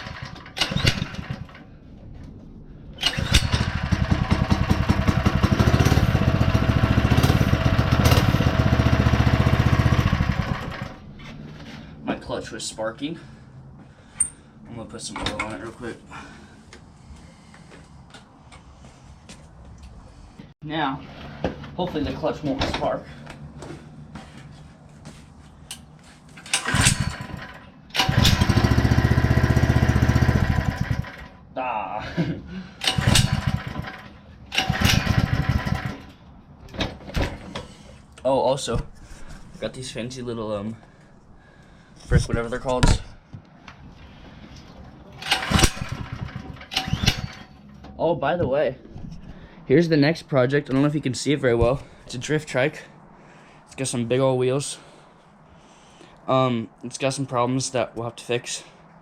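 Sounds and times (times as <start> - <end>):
small single-cylinder engine revving: 3.0 - 11.0, 26.5 - 31.3, 32.8 - 36.1, 45.2 - 47.4.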